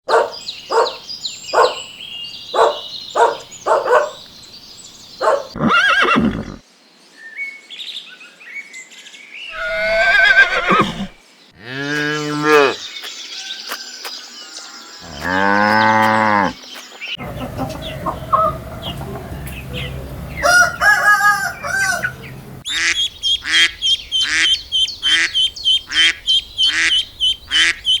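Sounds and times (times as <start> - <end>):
birds chirping: 0.0 - 6.8, 9.4 - 28.0
farm animal calls: 0.1 - 1.9, 2.5 - 4.2, 5.2 - 6.6, 9.5 - 12.8, 15.0 - 16.6, 17.2 - 28.0
deep drawn-out animal call: 9.5 - 12.8
whinny-like animal call: 9.5 - 12.8.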